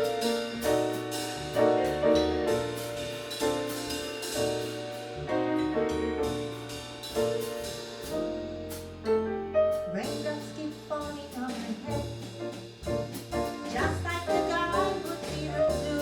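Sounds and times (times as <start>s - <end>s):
jazz band playing: 0.0s - 16.0s.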